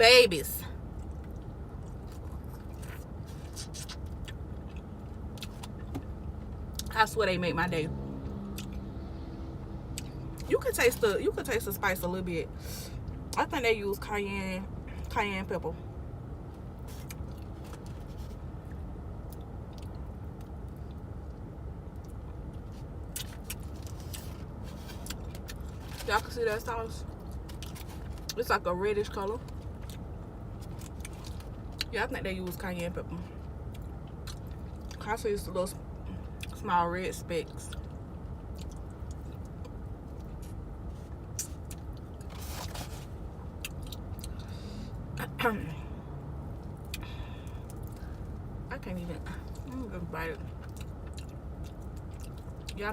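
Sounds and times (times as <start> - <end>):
low steady hum: 0.0 - 52.9
chewing and mouth smacking: 0.9 - 6.1, 16.8 - 26.2, 29.4 - 31.9, 33.6 - 35.0, 37.7 - 44.5, 50.4 - 52.8.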